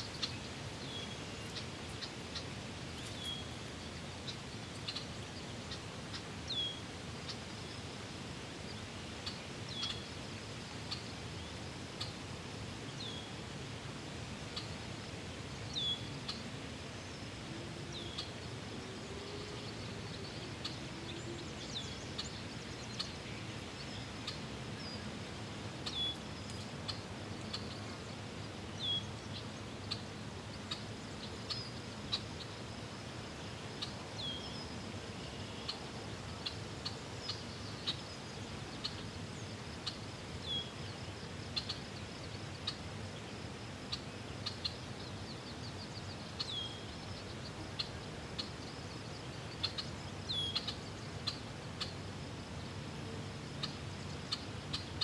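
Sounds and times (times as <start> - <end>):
small birds chirping: 0.0 - 7.9, 8.7 - 10.2, 15.5 - 52.7, 53.4 - 55.0
steady hiss: 0.0 - 55.0.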